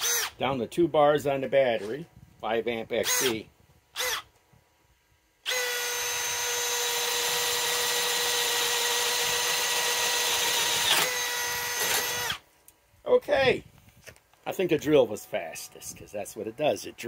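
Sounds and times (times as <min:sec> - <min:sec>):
cordless drill motor whining: 0:00.0 - 0:00.4, 0:03.0 - 0:04.4, 0:05.4 - 0:12.4.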